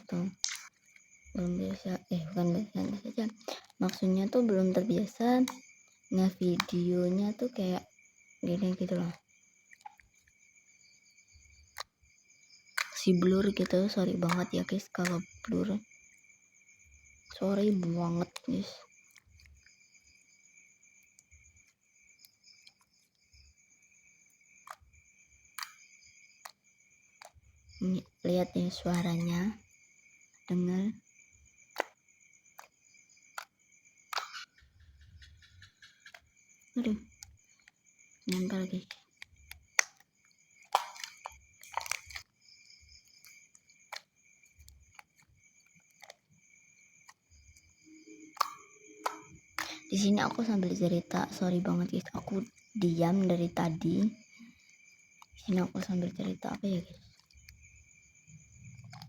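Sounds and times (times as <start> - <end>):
soft clicks and pops: 0.0 - 1.1, 31.6 - 59.0
slime squeezed with wet clicks: 40.6 - 42.3, 48.3 - 49.9.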